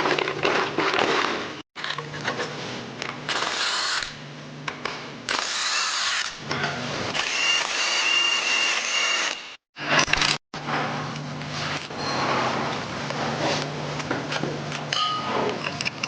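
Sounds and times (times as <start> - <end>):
power tool whining: 7.1 - 10.1.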